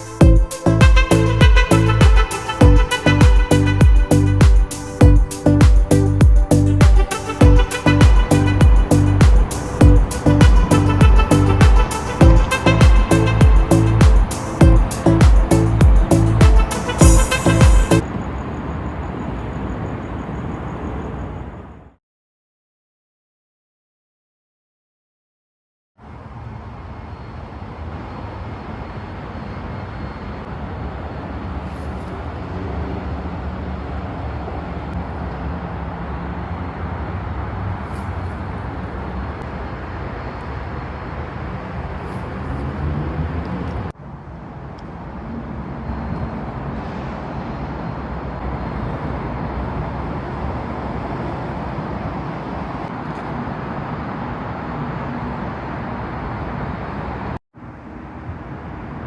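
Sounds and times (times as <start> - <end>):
road noise: 0.0 - 22.0, 26.0 - 59.0
vehicle engine running: 6.0 - 18.0.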